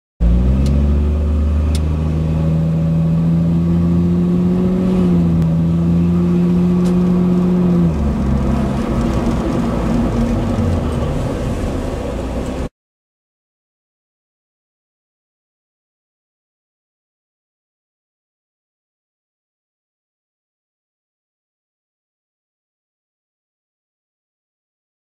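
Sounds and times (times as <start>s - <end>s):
car engine droning: 0.2s - 12.7s.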